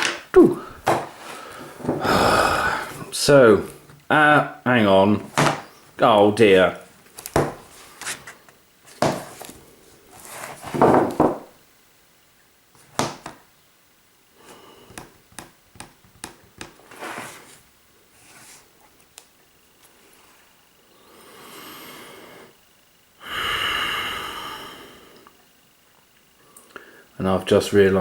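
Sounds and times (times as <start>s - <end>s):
small knocks and clicks: 14.9s - 16.8s.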